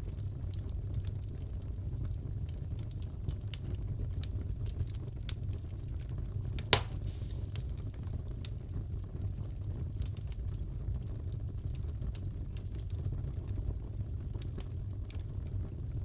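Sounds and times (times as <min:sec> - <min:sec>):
fire crackling: 0:00.2 - 0:16.0
wood snapping and popping: 0:06.6 - 0:07.6.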